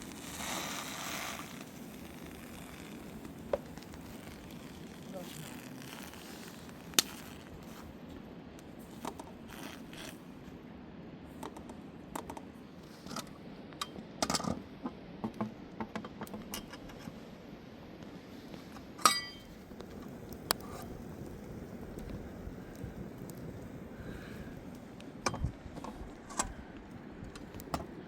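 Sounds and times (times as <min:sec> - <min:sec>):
sharp ringing clink: 0:19.0 - 0:19.5.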